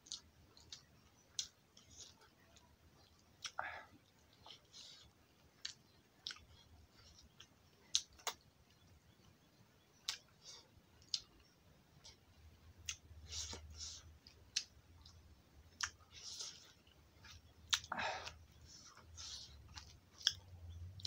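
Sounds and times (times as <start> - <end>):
person chewing: 0.0 - 9.2, 10.0 - 21.0
lip smacks: 10.0 - 11.4, 15.8 - 20.5.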